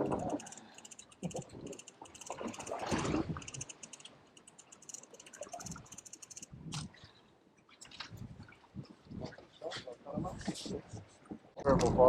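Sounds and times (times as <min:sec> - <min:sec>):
rapid light clicking: 0:00.0 - 0:06.6.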